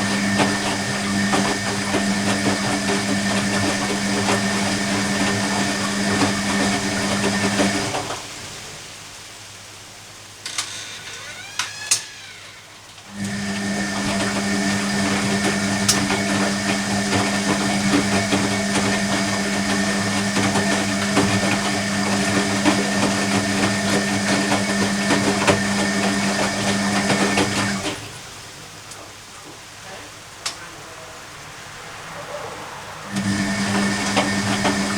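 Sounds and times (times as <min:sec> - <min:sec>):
washing machine motor humming: 0:00.0 - 0:08.7, 0:11.2 - 0:30.3, 0:33.0 - 0:34.9
washing machine clicks: 0:11.5 - 0:28.1.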